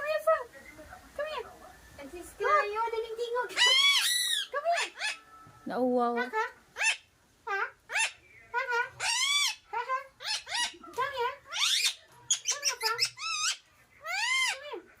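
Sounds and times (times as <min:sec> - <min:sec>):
parakeet squawking: 0:02.4 - 0:05.4, 0:06.2 - 0:15.0.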